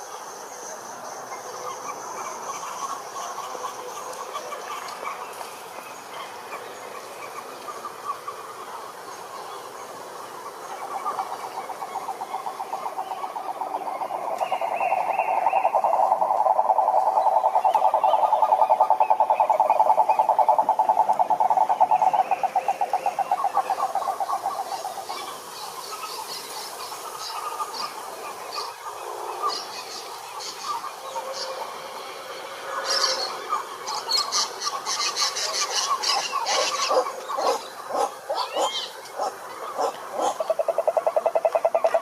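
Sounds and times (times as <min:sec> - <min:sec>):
frogs clicking calls: 0:00.0 - 0:42.0
frog pulsed trill: 0:12.0 - 0:24.6.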